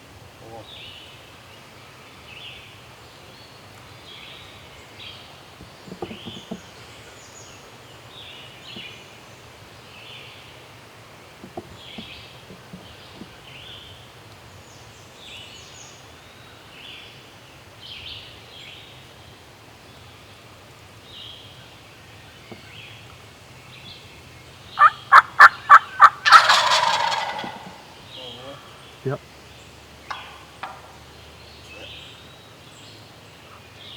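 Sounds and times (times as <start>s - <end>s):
faint songbird chirps: 0.4s - 33.9s
turkey gobbling: 24.6s - 28.8s, 30.1s - 31.1s.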